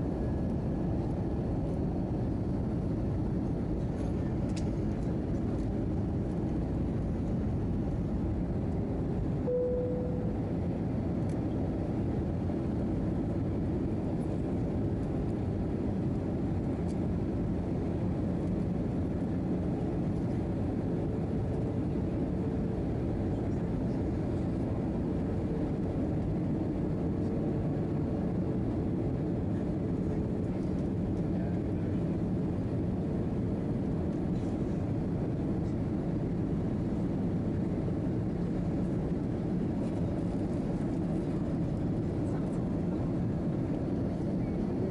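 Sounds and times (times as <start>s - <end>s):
jet airliner cabin noise: 0.0s - 44.9s
short faint tone: 9.5s - 10.5s.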